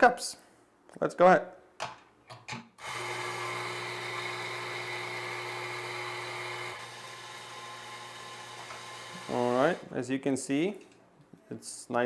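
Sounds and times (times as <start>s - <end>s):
coffee grinder motor: 2.8s - 9.8s.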